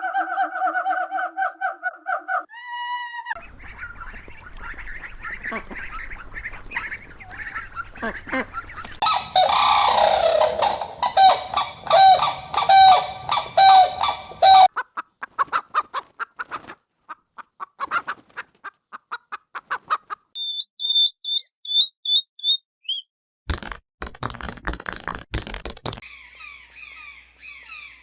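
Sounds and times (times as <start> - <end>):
high thin chirps: 5.3 - 14.7
loud honking animal call: 8.0 - 14.7.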